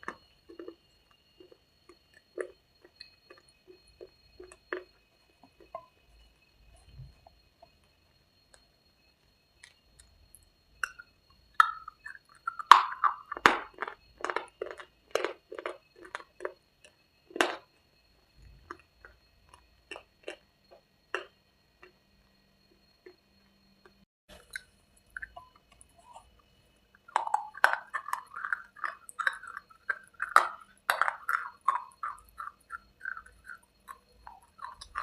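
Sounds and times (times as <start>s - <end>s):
crunchy food chewing: 0.0s - 8.7s, 9.6s - 35.0s.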